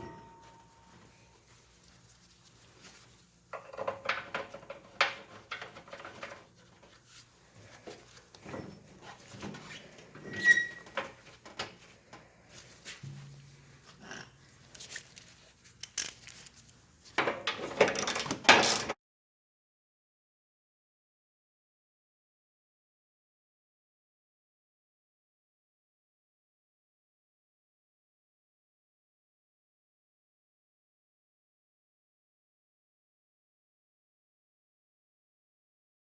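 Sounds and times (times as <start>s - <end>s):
metal tools clinking: 15.8s - 16.4s, 17.3s - 18.9s
metal parts rattling: 15.8s - 16.5s, 17.3s - 18.9s.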